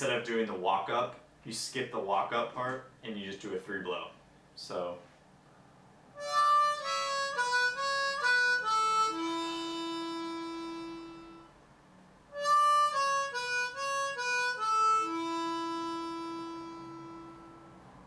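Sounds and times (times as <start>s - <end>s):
harmonica single notes: 6.2s - 11.6s, 12.3s - 18.0s.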